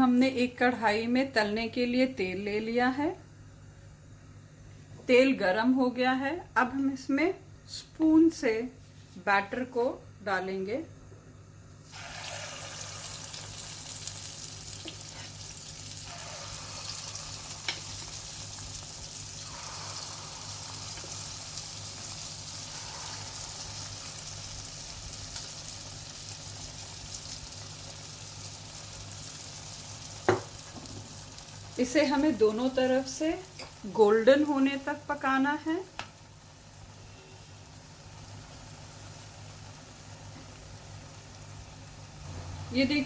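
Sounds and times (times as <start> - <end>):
batter sizzling in hot oil: 11.8 - 43.0.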